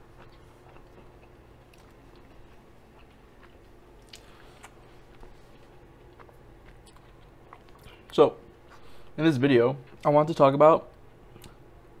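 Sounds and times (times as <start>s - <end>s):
person chewing food: 0.0s - 9.1s
low room hum: 0.0s - 12.0s.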